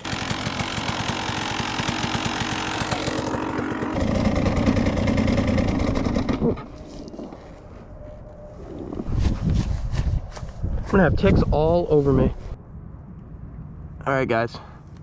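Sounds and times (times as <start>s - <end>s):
dirt bike engine revving: 0.0s - 7.1s.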